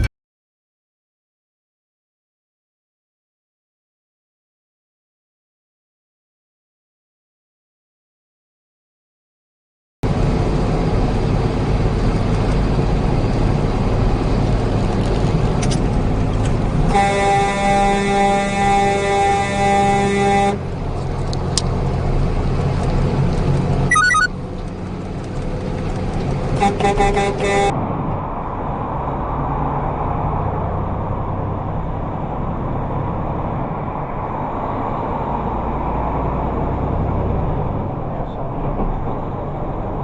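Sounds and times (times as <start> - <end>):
vehicle driving road noise: 10.0 - 40.0
vehicle horn honking: 16.9 - 20.6, 23.9 - 24.3, 26.6 - 27.7.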